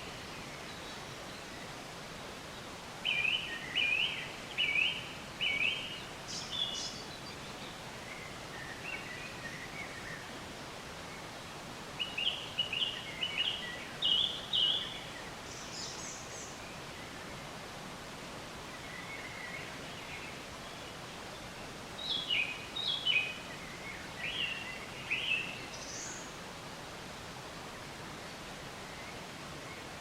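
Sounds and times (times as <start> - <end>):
songbirds chirping: 0.0 - 30.0
steady background hiss: 0.0 - 30.0.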